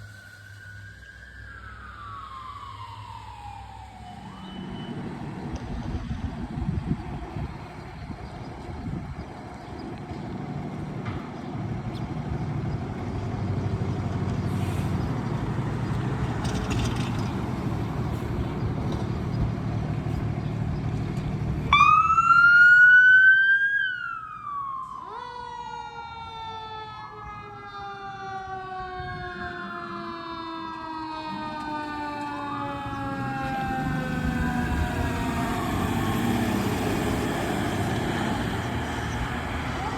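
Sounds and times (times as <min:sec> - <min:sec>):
wailing siren: 0:00.0 - 0:09.0, 0:15.5 - 0:19.2, 0:21.7 - 0:39.9
emergency vehicle siren: 0:00.0 - 0:12.6, 0:14.6 - 0:20.3, 0:21.5 - 0:39.9
passing vehicle engine: 0:10.3 - 0:22.4, 0:31.6 - 0:39.9.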